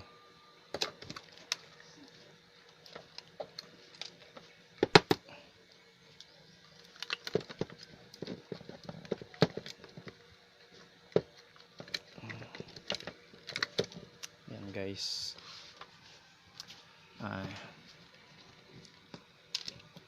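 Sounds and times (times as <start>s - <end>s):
small parts clicking and tapping: 6.2s - 10.2s, 11.1s - 14.4s, 18.7s - 20.0s.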